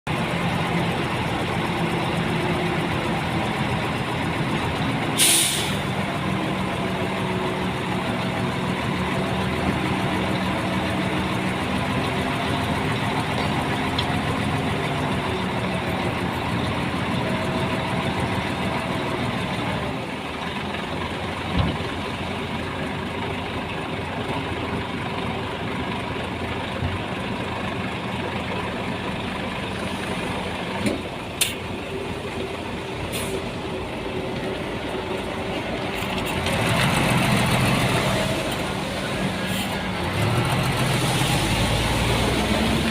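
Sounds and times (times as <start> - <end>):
heavy diesel engine running: 0.1 - 42.9
short loud hiss: 5.2 - 5.8.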